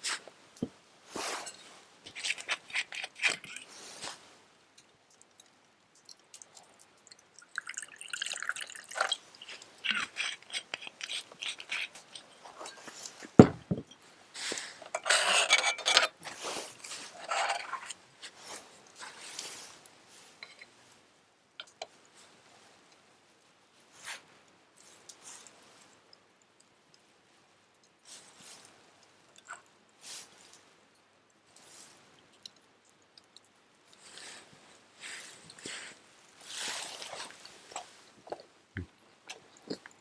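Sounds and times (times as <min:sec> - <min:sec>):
liquid pouring and dripping: 0:04.8 - 0:13.2.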